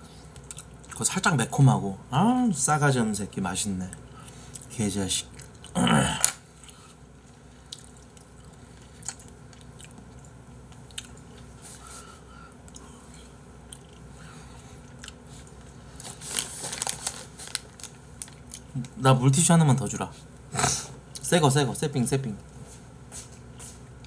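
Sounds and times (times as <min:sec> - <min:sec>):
quiet chewing: 0:00.3 - 0:01.0, 0:03.9 - 0:04.7, 0:06.5 - 0:18.9.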